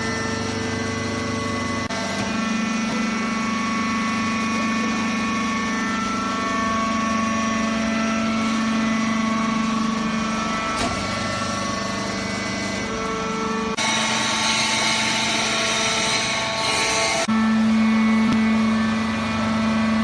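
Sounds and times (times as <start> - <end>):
baler machine humming: 0.0 - 14.3.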